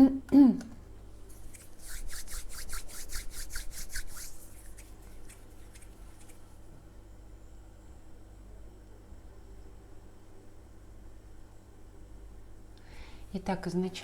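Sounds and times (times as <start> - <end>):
cards shuffled by hand: 1.3 - 6.6.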